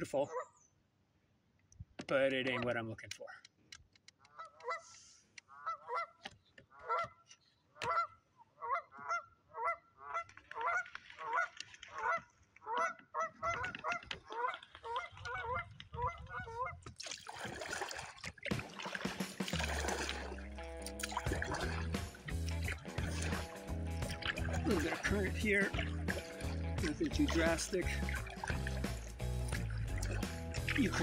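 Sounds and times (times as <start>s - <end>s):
geese honking: 4.3s - 7.2s, 7.8s - 16.8s.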